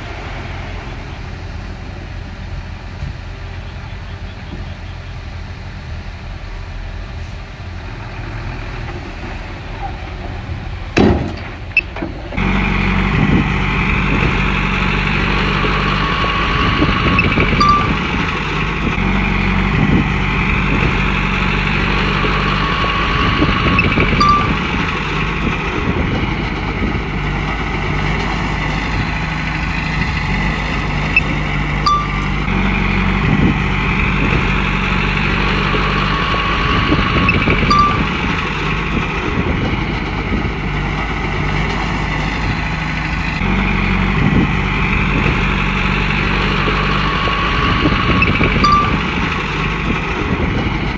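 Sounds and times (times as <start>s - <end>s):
bulldozer diesel engine running: 0.0s - 50.9s
metallic squeal: 17.1s - 18.4s, 23.7s - 25.0s, 31.1s - 32.5s, 37.2s - 38.4s, 48.2s - 49.3s
sharp metal clanks: 24.2s - 24.9s, 31.9s - 32.5s.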